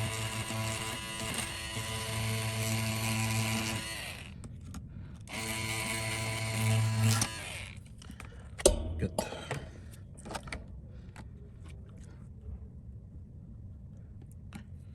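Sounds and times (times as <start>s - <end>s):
handheld electric motor tool buzzing: 0.0s - 8.0s.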